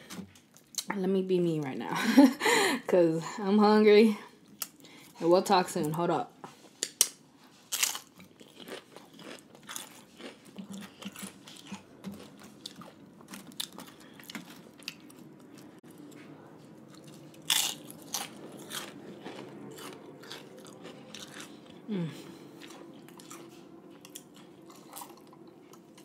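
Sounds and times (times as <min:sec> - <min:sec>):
crunching and chewing of crisp chips: 0:06.8 - 0:26.0.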